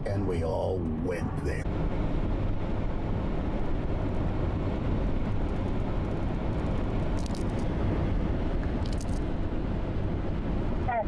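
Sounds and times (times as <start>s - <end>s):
vehicle rumble: 0.0s - 11.0s.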